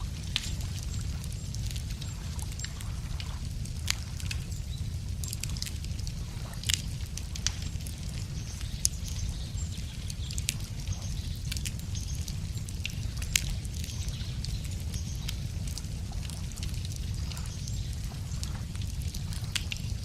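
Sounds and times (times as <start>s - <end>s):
campfire crackling and popping: 0.0s - 20.0s
low rumble: 0.0s - 20.0s.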